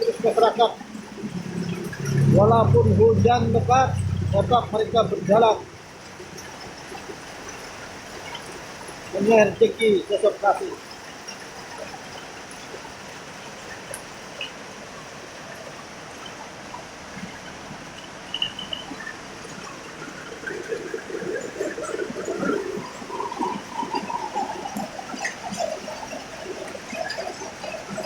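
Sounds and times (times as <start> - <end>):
heavy rain falling: 0.0 - 10.8
wavering pitched sound: 1.2 - 6.2.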